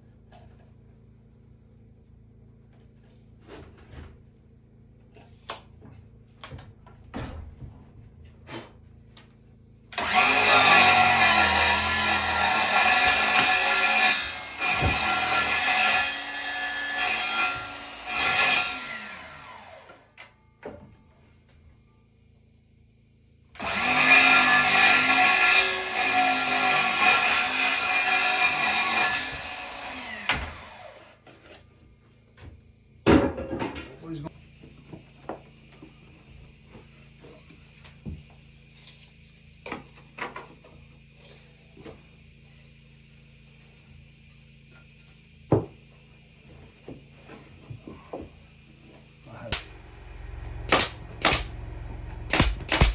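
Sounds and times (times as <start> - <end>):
power saw cutting wood: 9.9 - 20.1, 23.6 - 31.3, 46.8 - 52.9
saw motor winding down: 10.0 - 20.1, 48.4 - 52.9
faint steady hum: 47.3 - 52.9.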